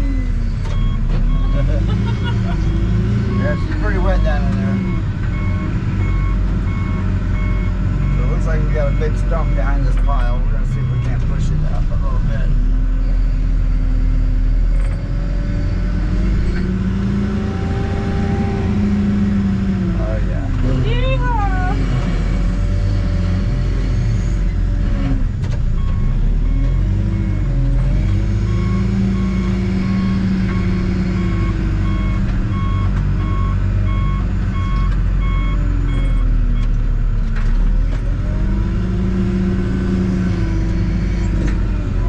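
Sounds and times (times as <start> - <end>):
diesel engine revving: 0.0 - 42.0.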